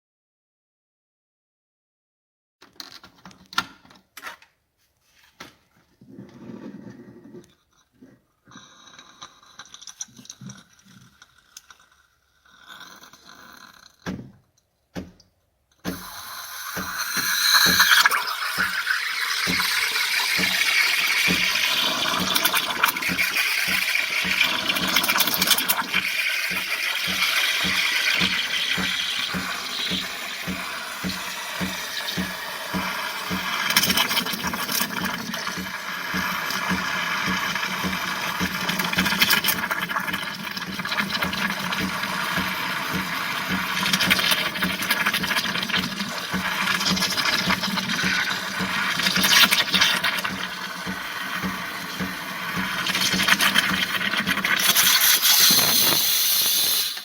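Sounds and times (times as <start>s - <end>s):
espresso machine pump hum: 15.9s - 57.0s.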